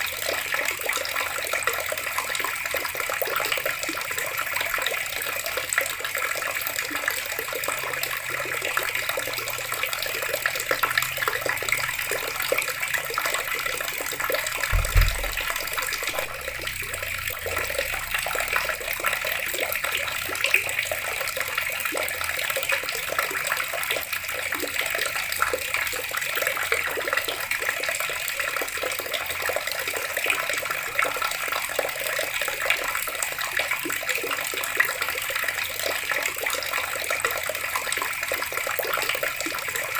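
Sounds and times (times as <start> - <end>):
water running from a tap: 0.0 - 39.9
short low thump: 14.7 - 17.6.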